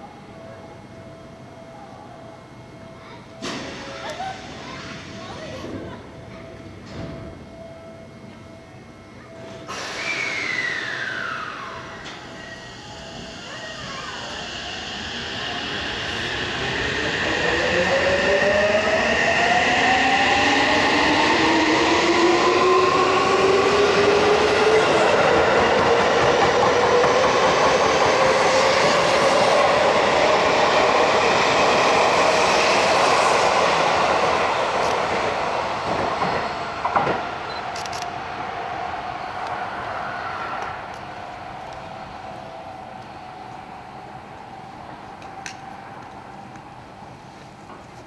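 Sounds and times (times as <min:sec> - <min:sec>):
wheel and rail noise: 0:09.4 - 0:48.0
electric train motor whine: 0:09.5 - 0:46.7.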